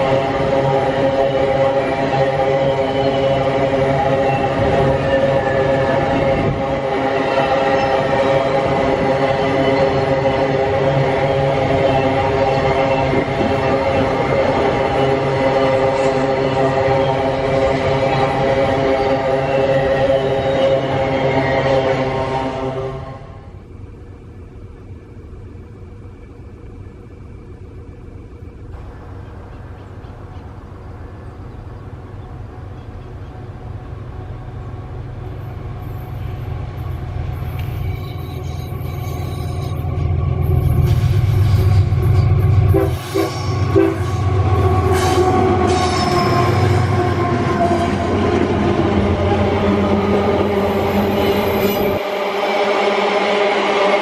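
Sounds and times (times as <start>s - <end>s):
multi-tone locomotive horn: 0.0s - 23.7s, 35.3s - 54.0s
train rumbling past: 0.0s - 54.0s.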